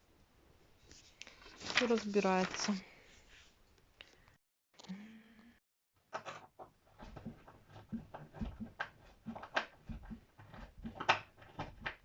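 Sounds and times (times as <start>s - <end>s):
objects clicking and knocking: 6.1s - 12.0s.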